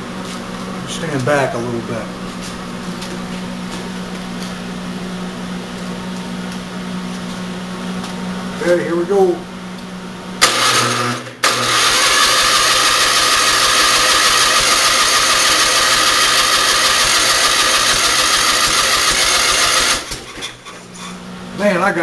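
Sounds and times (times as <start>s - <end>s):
engine cranking without starting: 10.4s - 20.8s.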